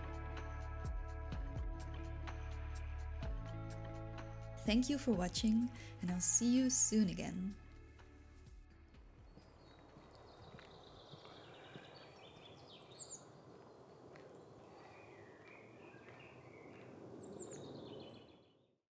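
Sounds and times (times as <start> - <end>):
outdoor background noise: 6.0 - 18.8
birds chirping and singing: 9.3 - 18.6
high falling bird chirps: 9.4 - 18.7.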